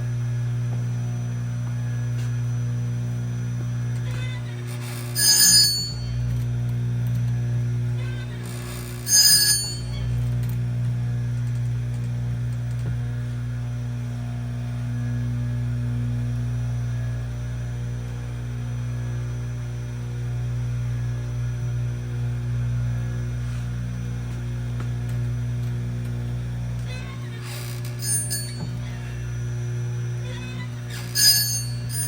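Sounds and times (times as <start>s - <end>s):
electric motor humming: 0.0s - 32.0s
high metallic ring: 4.1s - 6.3s, 8.0s - 10.3s, 26.9s - 29.1s, 30.2s - 32.0s.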